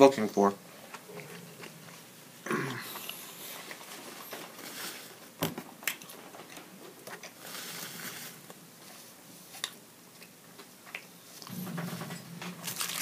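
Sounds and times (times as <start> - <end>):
person chewing food: 0.9 - 3.9.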